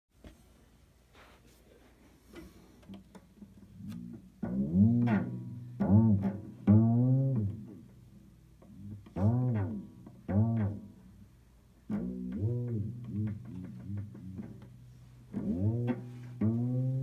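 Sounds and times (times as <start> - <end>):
cello swooping low notes: 8.7 - 11.3, 11.9 - 17.0.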